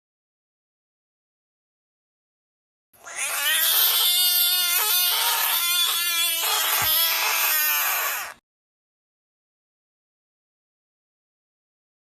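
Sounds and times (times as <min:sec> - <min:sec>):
person screaming distorted: 0:03.0 - 0:08.4.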